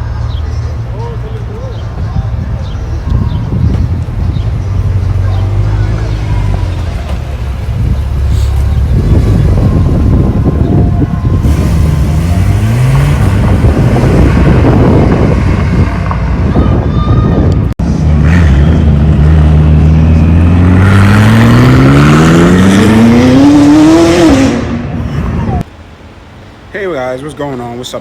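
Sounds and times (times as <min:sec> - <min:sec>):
car engine accelerating hard: 0:04.3 - 0:16.5, 0:17.8 - 0:25.7.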